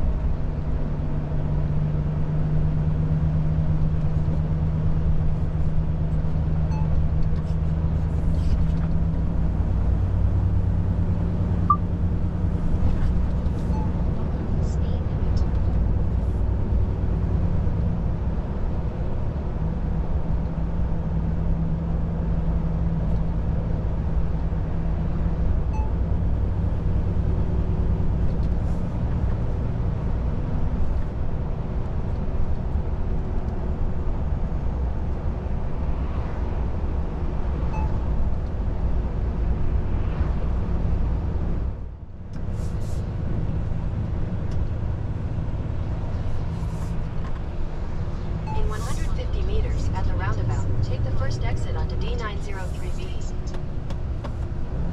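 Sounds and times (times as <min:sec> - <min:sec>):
tyre and road noise: 0:22.6 - 0:54.9
diesel truck engine droning: 0:40.6 - 0:54.9.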